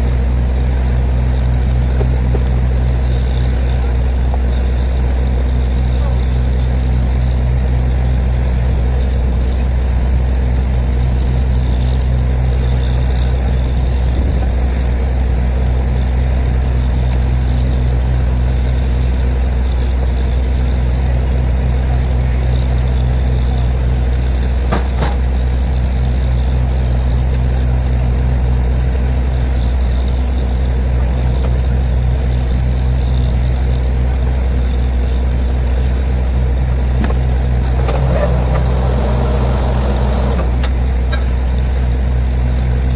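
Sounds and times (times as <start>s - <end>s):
drilling rig engine drone: 0.0s - 42.9s.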